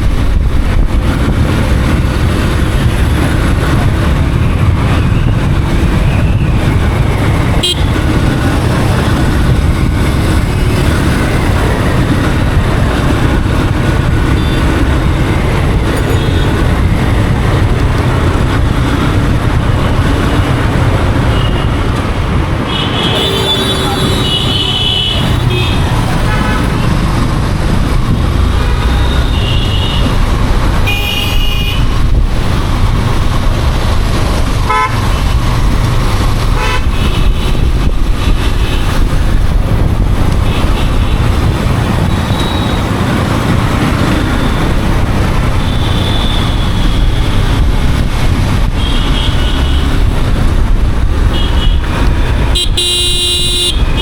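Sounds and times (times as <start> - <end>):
motorcycle engine and road noise: 0.0 - 54.0
vehicle horns honking: 7.5 - 8.4, 14.3 - 14.8, 22.6 - 26.9, 28.6 - 30.2, 30.8 - 32.0, 34.7 - 35.2, 36.6 - 39.0, 42.0 - 43.0, 45.6 - 47.3, 48.8 - 50.1, 51.3 - 54.0.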